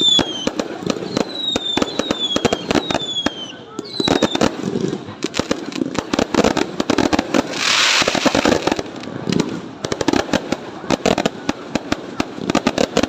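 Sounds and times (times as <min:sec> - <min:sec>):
fireworks cracking and banging: 0:00.0 - 0:13.0
firework hissing burst: 0:07.2 - 0:09.0.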